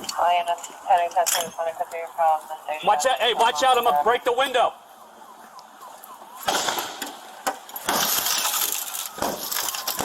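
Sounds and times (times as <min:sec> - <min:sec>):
glass smashing and crunching: 0:07.8 - 0:10.0.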